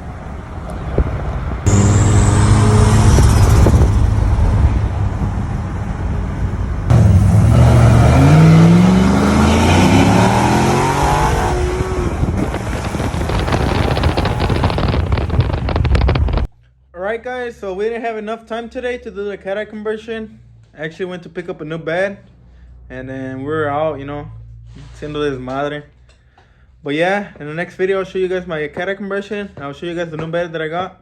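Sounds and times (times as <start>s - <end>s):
car engine accelerating hard: 0.7s - 16.5s.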